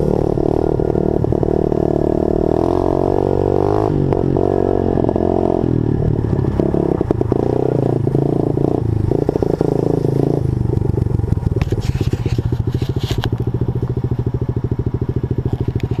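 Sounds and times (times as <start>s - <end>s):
small motorbike engine running: 0.0s - 16.0s.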